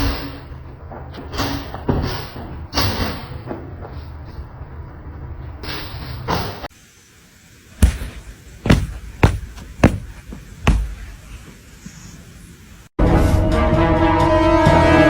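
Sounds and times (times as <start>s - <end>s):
sudden thumps: 7.8s - 11.4s.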